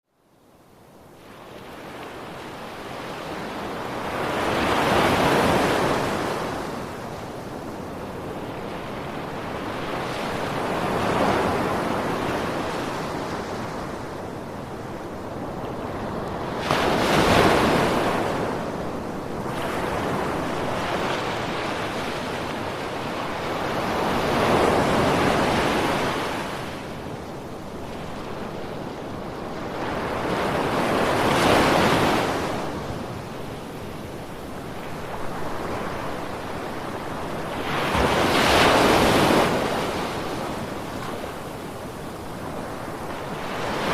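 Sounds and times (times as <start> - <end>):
ocean waves breaking: 34.7 - 43.9.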